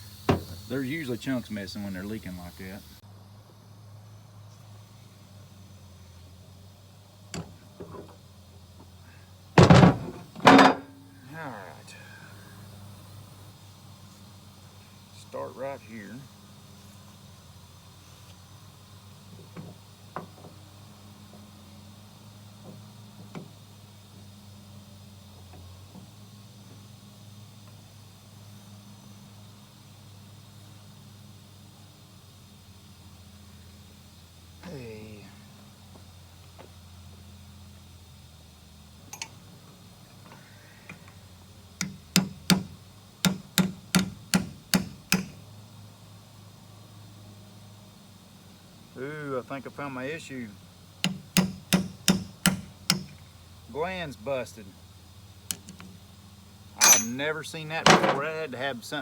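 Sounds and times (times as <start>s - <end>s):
hand tools tapping on metal: 39.1s - 39.4s, 41.8s - 45.4s, 51.0s - 53.2s, 55.5s - 55.9s, 56.8s - 57.2s, 57.9s - 58.3s
hammer striking metal: 43.3s - 45.4s, 51.1s - 53.1s, 56.8s - 57.2s.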